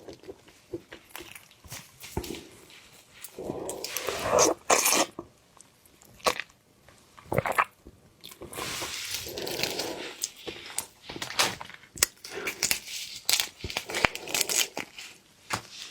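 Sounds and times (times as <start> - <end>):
biting and chewing seafood: 7.2 - 15.2.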